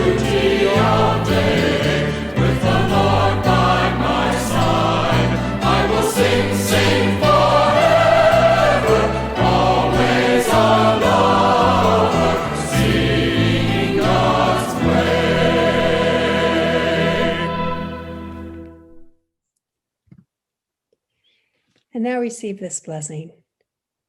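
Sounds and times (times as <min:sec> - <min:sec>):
voices singing worship song: 0:00.0 - 0:18.6
instrumental accompaniment: 0:00.0 - 0:19.1.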